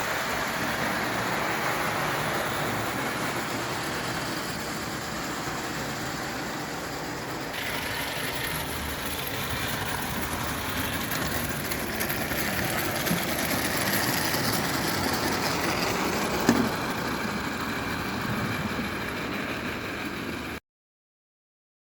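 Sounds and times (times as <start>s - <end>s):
toy steam locomotive running: 0.0s - 20.6s.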